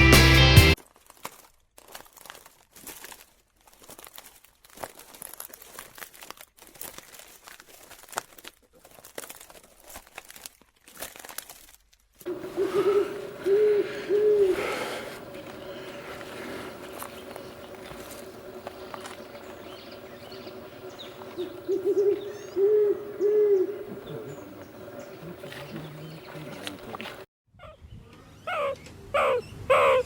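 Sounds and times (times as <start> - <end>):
faint rustling and crinkling: 0.8 - 21.7
animal hooting calls: 12.3 - 27.8, 28.5 - 30.0.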